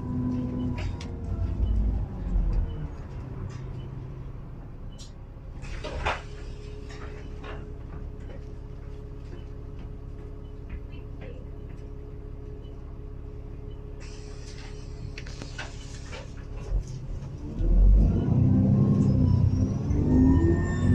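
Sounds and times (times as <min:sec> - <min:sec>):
bus engine idling: 0:00.0 - 0:17.4
air brake hiss: 0:14.0 - 0:16.0.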